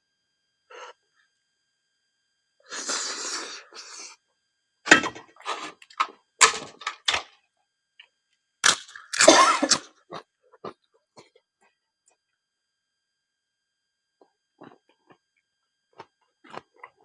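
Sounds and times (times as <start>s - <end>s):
crunching and chewing food: 8.0s - 12.4s, 14.2s - 17.0s.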